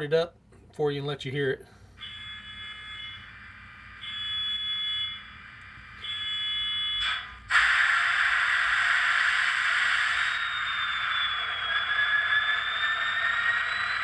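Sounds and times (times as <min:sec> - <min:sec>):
buzzer-like tone: 0:02.0 - 0:07.3
short burst of noise: 0:07.0 - 0:14.0.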